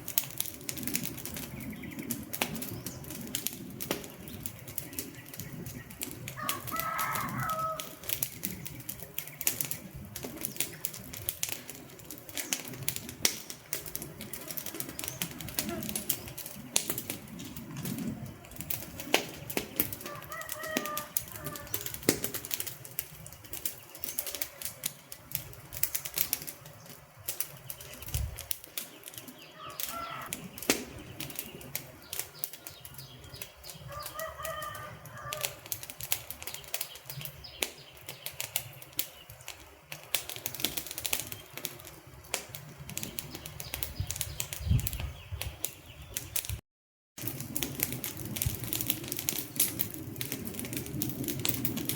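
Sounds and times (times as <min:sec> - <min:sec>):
wood fire crackling: 0:00.0 - 0:46.6, 0:47.2 - 0:51.9.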